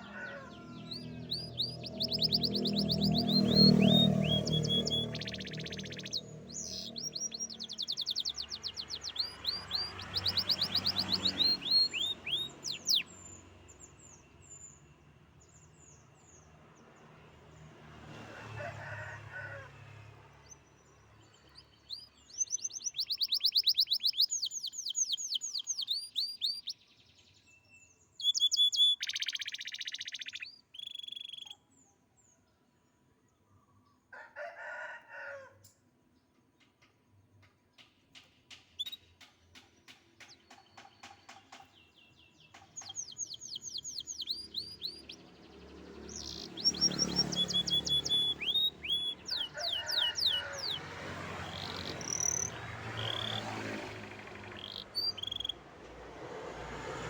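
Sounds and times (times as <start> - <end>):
canary singing trills: 0.0 - 14.8, 21.3 - 31.7, 38.7 - 55.6.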